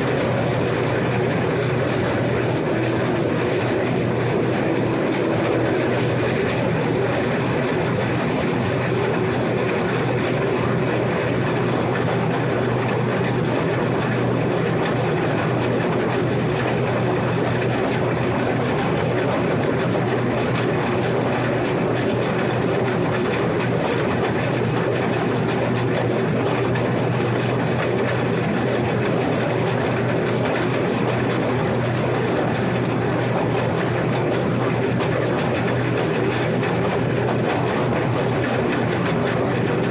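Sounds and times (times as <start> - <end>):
combine harvester droning: 0.0 - 23.5.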